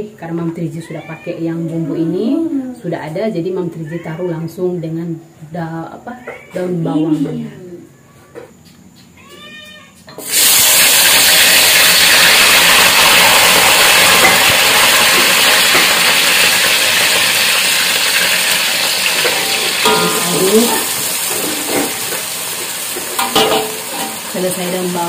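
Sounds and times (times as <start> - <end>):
onions sizzling in hot oil: 10.2 - 25.0.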